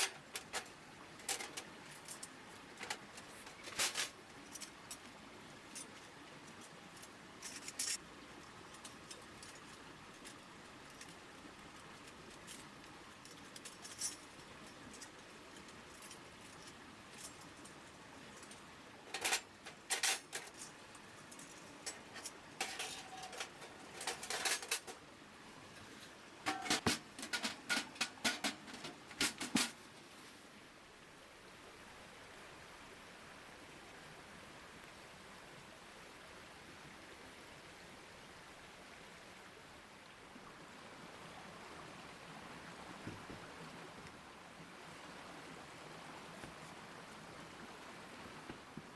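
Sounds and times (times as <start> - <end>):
metallic clinks and rattles: 0.0 - 5.1, 5.7 - 25.0, 25.8 - 29.8.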